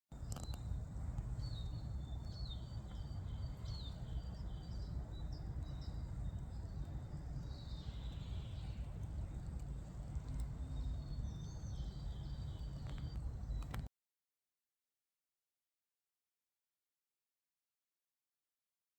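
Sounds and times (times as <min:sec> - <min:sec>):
songbirds chirping and trilling: 0:00.2 - 0:13.9
steady low rumble: 0:00.2 - 0:13.9.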